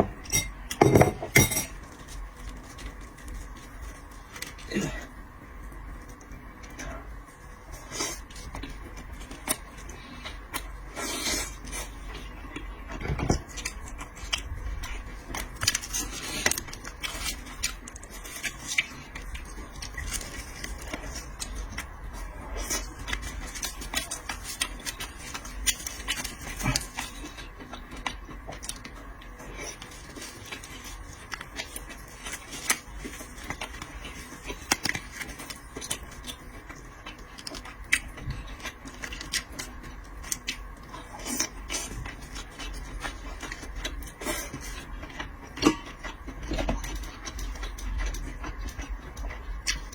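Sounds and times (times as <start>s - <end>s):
faint steady hum: 0.0s - 49.9s
chewing: 7.7s - 49.9s.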